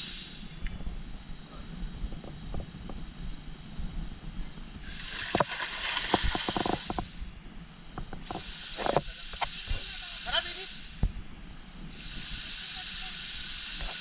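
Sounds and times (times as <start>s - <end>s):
water splashing in pool: 4.9s - 6.9s.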